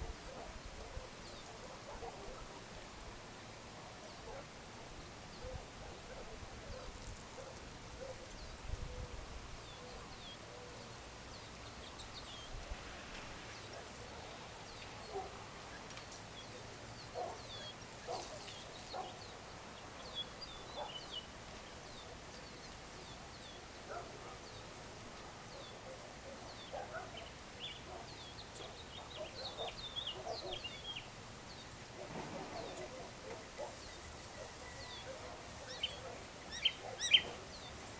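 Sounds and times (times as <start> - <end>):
background hiss: 0.0 - 37.9
birds chirping: 0.0 - 37.9
low bird calls: 32.0 - 37.8.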